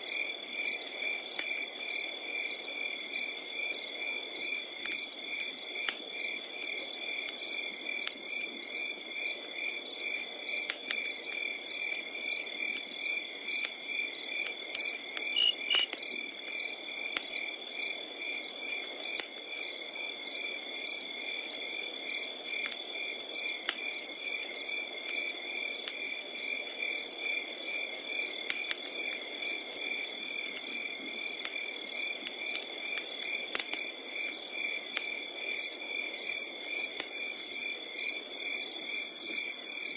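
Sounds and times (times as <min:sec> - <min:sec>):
crickets chirping: 0:00.0 - 0:39.9
wood fire crackling: 0:00.0 - 0:39.9
high insect trill: 0:14.8 - 0:16.7, 0:34.4 - 0:39.9.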